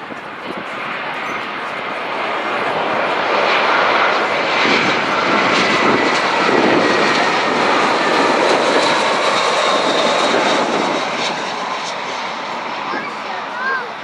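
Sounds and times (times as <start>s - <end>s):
faint high jet whine: 0.0s - 14.0s
jet airliner roaring past: 0.0s - 14.0s.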